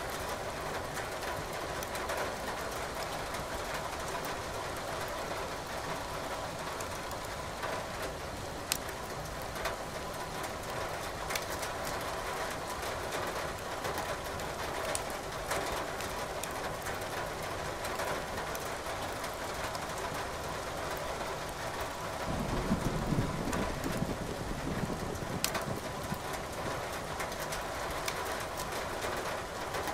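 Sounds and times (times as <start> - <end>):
steady rain: 0.0 - 29.9
fire crackling and popping: 8.7 - 8.9, 14.9 - 15.1, 16.0 - 16.6, 25.4 - 26.3.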